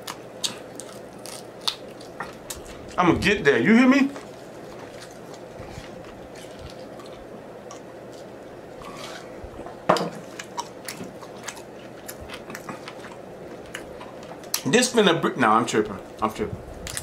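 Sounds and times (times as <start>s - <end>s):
chewing sticky food: 0.0s - 3.0s, 4.1s - 9.0s, 10.2s - 14.7s.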